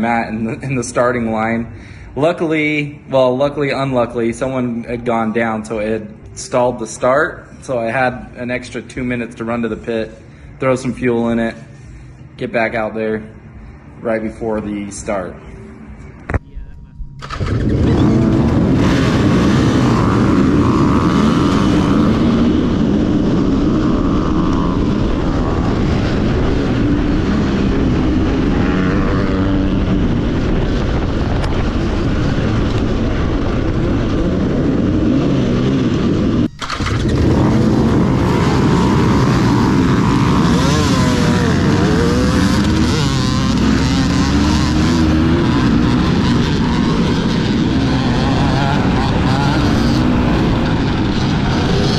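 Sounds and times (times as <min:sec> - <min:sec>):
dirt bike engine revving: 0:17.2 - 0:51.9.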